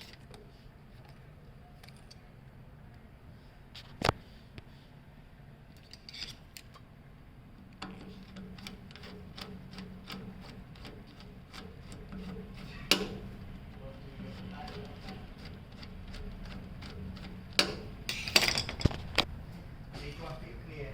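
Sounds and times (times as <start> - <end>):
low steady hum: 0.0 - 20.9
tools and parts clattering: 18.1 - 19.2.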